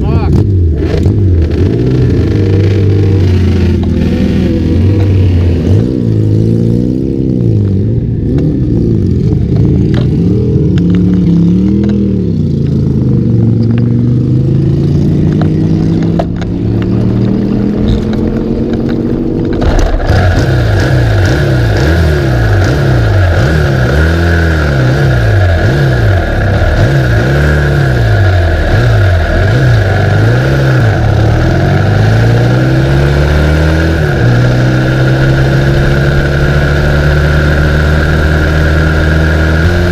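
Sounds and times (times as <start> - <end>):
race engine revving: 14.2 - 39.9.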